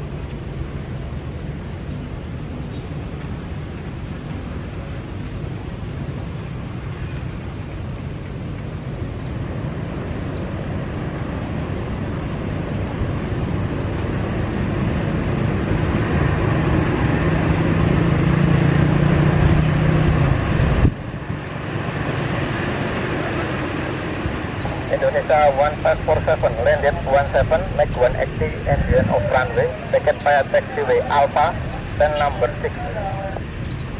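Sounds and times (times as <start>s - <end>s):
jet airliner engine noise: 0.0s - 33.9s
low rumble: 25.6s - 33.9s.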